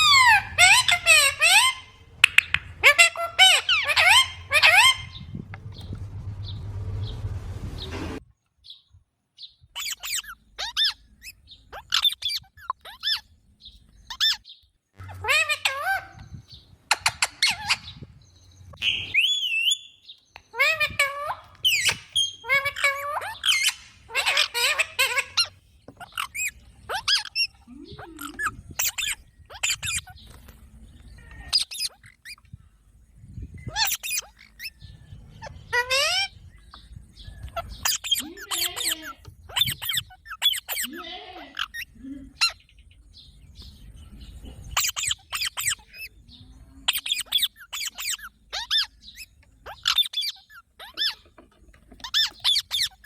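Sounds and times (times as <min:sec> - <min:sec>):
parrot chirping squawks: 0:00.0 - 0:05.4, 0:09.8 - 0:13.3, 0:14.1 - 0:18.0, 0:18.8 - 0:30.2, 0:31.4 - 0:32.4, 0:33.7 - 0:34.8, 0:35.4 - 0:36.4, 0:37.5 - 0:42.6, 0:44.7 - 0:46.2, 0:46.8 - 0:51.2, 0:52.0 - 0:53.0
low wavering voice-like sound: 0:27.6 - 0:28.7.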